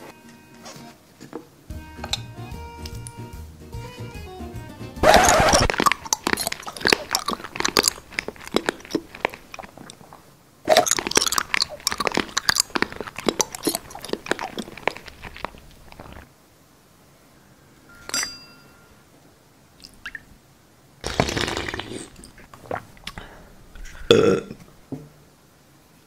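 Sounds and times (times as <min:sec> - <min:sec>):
crunchy biting and chewing: 0:05.0 - 0:16.3.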